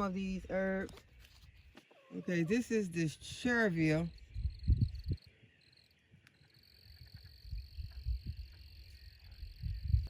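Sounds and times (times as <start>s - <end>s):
high-pitched insect trill: 2.2s - 10.0s.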